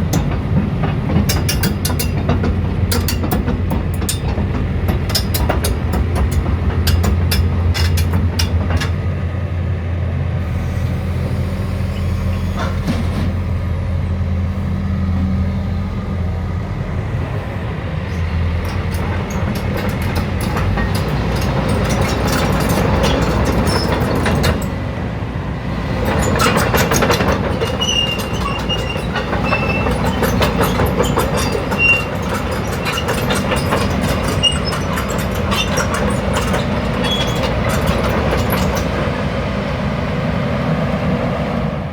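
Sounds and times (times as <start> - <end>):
metallic clanking and rattling: 0.0 - 9.3, 18.1 - 25.0, 25.8 - 39.2
excavator diesel engine humming: 0.0 - 41.9.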